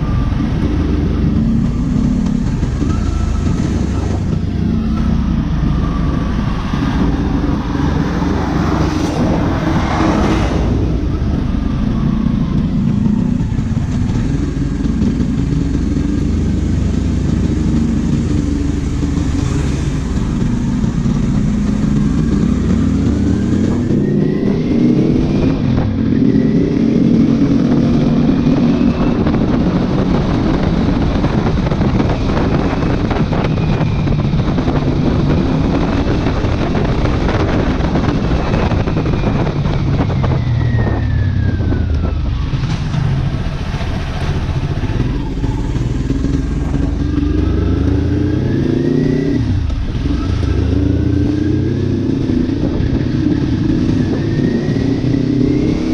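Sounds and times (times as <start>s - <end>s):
motorcycle engine revving: 0.0s - 55.9s
wind noise on microphone: 0.0s - 55.9s.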